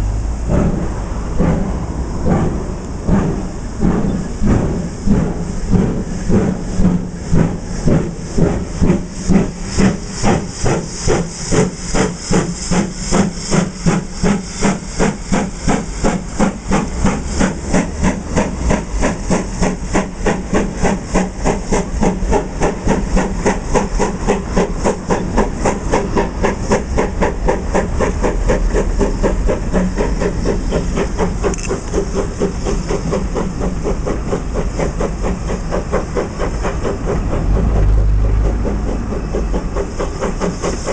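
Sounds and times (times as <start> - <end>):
steam locomotive chuffing: 0.0 - 40.9.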